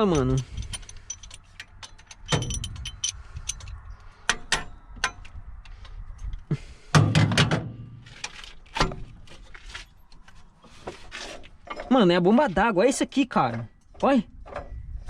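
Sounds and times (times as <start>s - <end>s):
metal tools knocking on engine parts: 0.0s - 5.3s.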